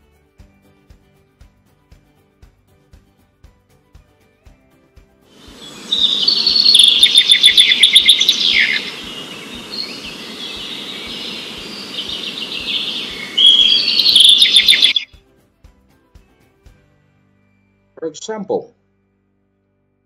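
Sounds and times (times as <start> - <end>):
steady low hiss: 5.4 - 15.0
bird song trills: 5.5 - 15.2.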